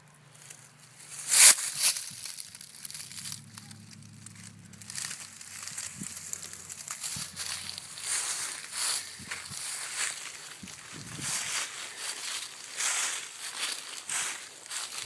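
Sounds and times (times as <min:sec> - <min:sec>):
crinkling and rustling: 0:00.0 - 0:15.0.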